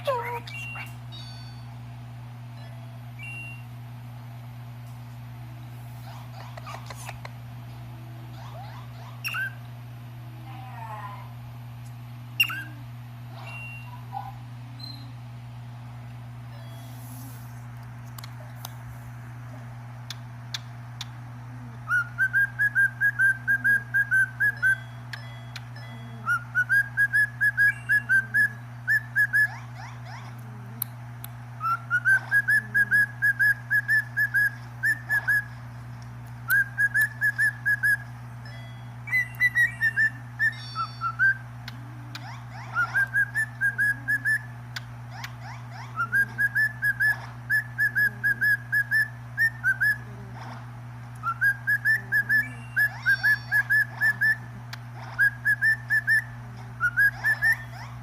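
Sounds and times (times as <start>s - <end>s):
bird whistling: 3.2s - 3.6s, 9.2s - 9.6s, 12.4s - 12.8s, 21.9s - 24.9s, 26.3s - 29.6s, 31.6s - 35.6s, 36.5s - 38.1s, 39.1s - 41.4s, 42.2s - 44.5s, 45.2s - 50.0s, 51.2s - 54.5s, 55.2s - 58.0s.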